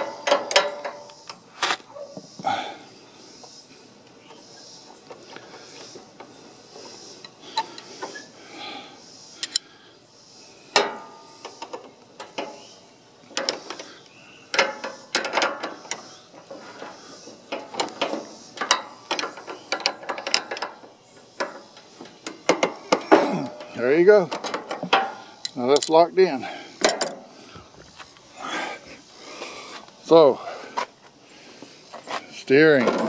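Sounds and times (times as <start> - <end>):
hand tools clicking and clanking: 0.0 - 2.6, 4.0 - 8.3, 9.4 - 9.7, 10.7 - 27.3, 31.9 - 33.0.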